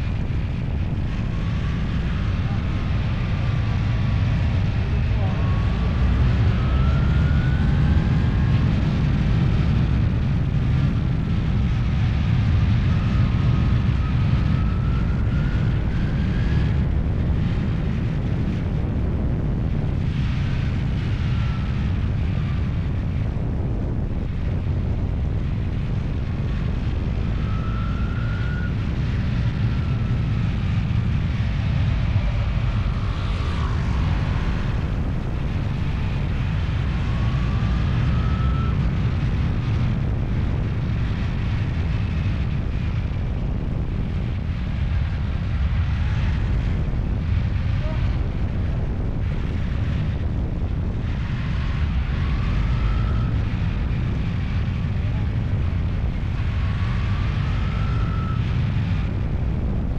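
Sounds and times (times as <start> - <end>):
engine running: 0.0 - 59.9
whine rising and falling: 26.6 - 39.8.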